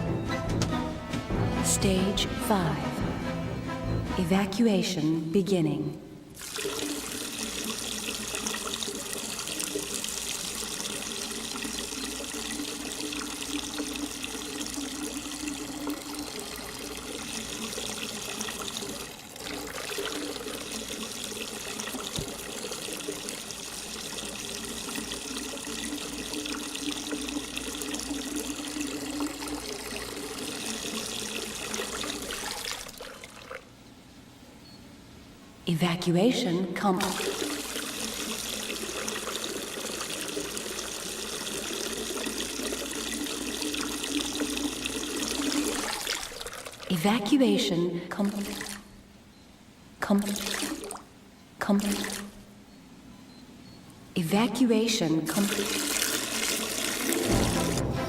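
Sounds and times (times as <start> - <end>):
running water: 6.4 - 33.7, 37.0 - 47.2, 50.1 - 52.4, 55.3 - 58.0.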